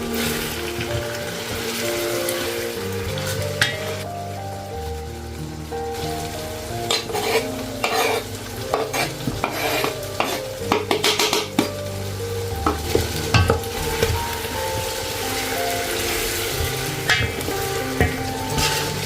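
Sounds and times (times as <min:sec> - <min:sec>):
food sizzling in a pan: 0:00.0 - 0:19.0
soft background music: 0:00.0 - 0:19.0
spoon scraping a pan: 0:06.8 - 0:11.7.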